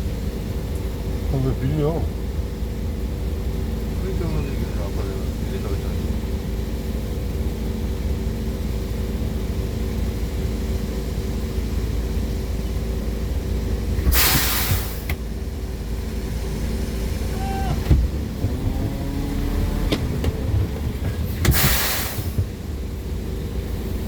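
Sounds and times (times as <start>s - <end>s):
engine drone: 0.0s - 24.0s
loud hiss: 14.1s - 15.1s, 21.2s - 22.6s.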